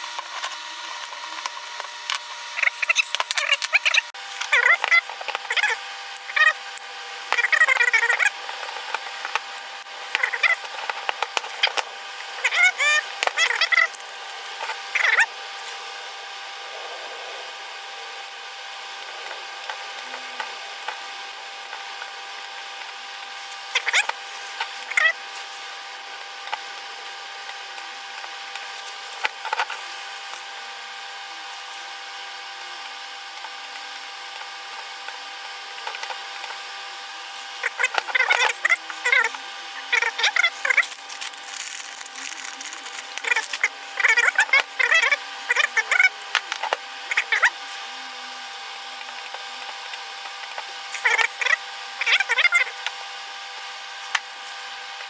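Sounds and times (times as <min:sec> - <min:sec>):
electrical hum: 0:00.0 - 0:55.0
tools clicking and scraping: 0:37.6 - 0:44.9.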